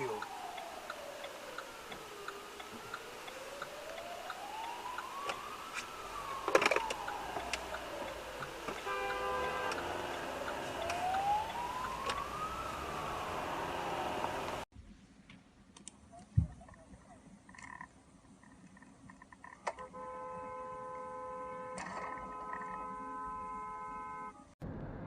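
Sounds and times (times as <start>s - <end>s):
emergency siren wailing: 0.0s - 14.7s
brief horn-like tone: 8.8s - 10.2s.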